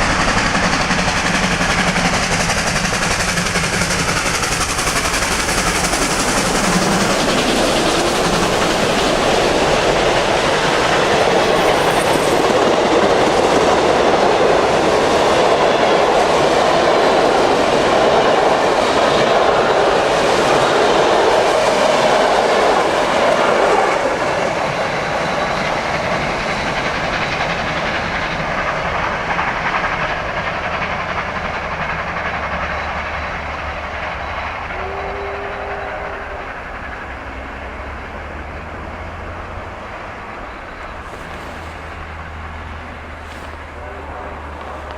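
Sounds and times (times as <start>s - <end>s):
train wheels clattering over rail joints: 0.0s - 17.2s, 24.5s - 34.8s, 39.5s - 44.9s.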